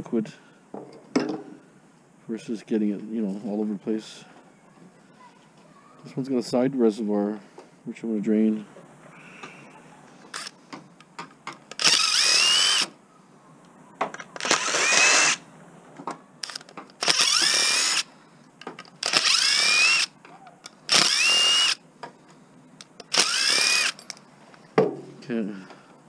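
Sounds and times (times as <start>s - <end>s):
power drill whine: 11.7s - 12.9s, 14.4s - 15.4s, 16.4s - 18.1s, 19.0s - 20.1s, 20.9s - 21.8s, 23.1s - 24.0s.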